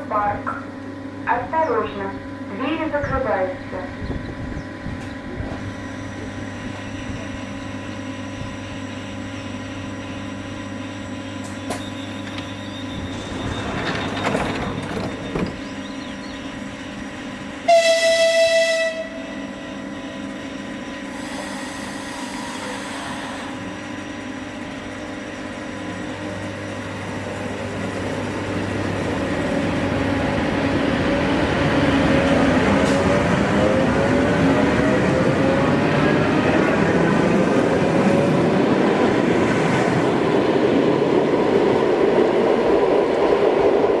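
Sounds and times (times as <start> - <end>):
train electric hum: 0.0 - 44.0
train horn blast: 17.6 - 20.2.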